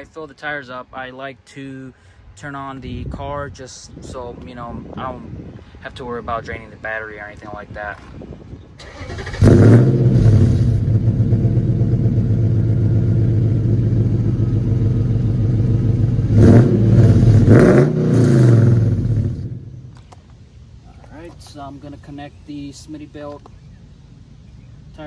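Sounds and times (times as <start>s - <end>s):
car engine revving: 8.8s - 20.0s
car engine starting and idling: 8.8s - 20.3s.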